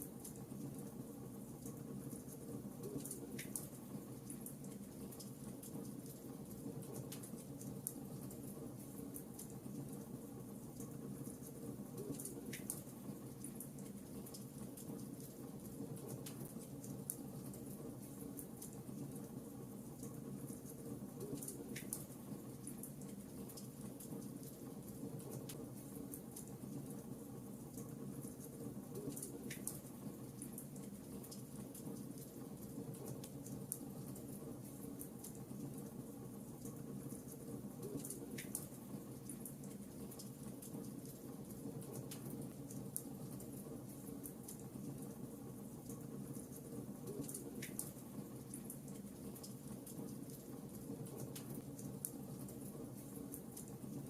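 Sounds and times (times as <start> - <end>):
logs burning in a fireplace: 0.0 - 54.0
fire crackles and pops: 3.0 - 8.3, 27.7 - 45.2, 45.8 - 54.0.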